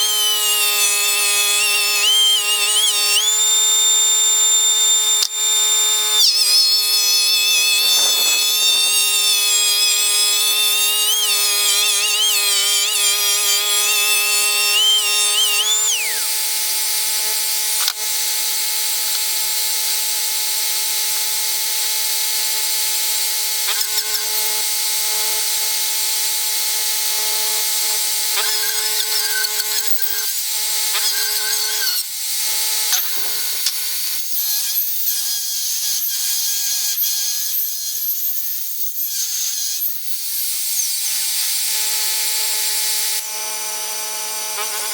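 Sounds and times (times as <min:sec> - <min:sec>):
power tool whining: 0:00.0 - 0:44.9.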